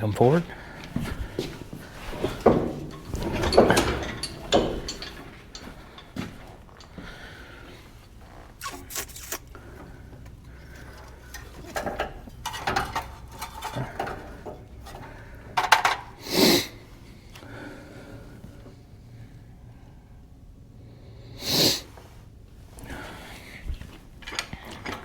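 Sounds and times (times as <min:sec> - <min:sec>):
tools knocking and clicking: 0:02.1 - 0:07.1, 0:11.3 - 0:16.2.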